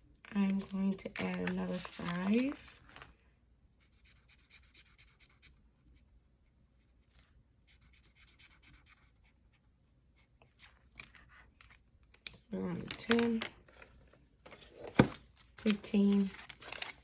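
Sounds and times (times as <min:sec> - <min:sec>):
paper money and envelopes rustling: 0:00.3 - 0:03.2, 0:10.4 - 0:17.0.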